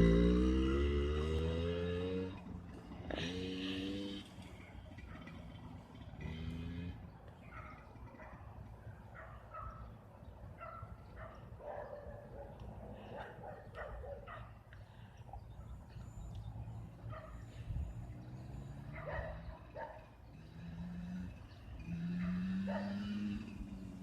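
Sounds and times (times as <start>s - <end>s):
dog barking: 7.5s - 8.4s, 9.1s - 9.9s, 10.6s - 14.6s, 17.1s - 17.5s, 18.9s - 20.1s, 22.1s - 23.1s.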